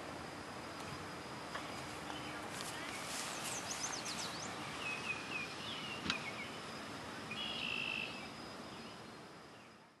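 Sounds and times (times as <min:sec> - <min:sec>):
small birds chirping: 0:01.6 - 0:06.7, 0:07.3 - 0:09.9
buzzy bird trill: 0:01.6 - 0:09.8.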